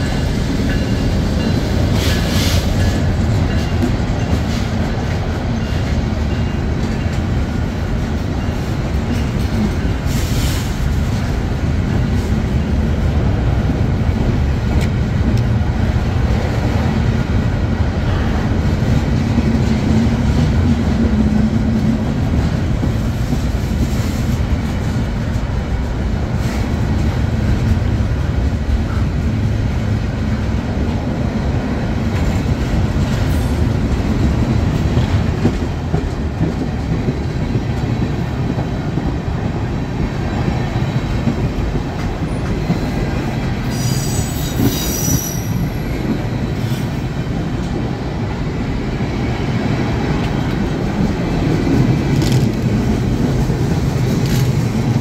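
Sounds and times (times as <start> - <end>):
freight train rumbling: 0.0 - 55.0
high wheel squeal: 43.7 - 45.8.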